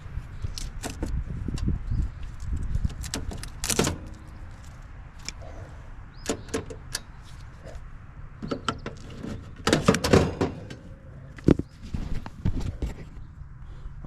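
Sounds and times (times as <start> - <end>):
rattling and clatter: 8.4 - 13.0.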